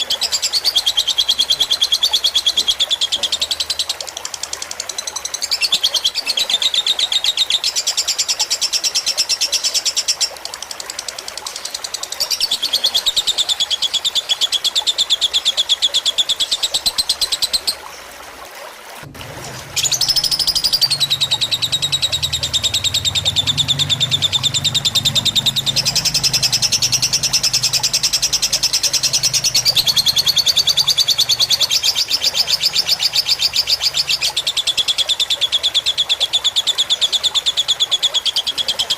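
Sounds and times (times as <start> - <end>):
water trickling: 0.0 - 38.9
bird chattering trills: 19.8 - 35.9.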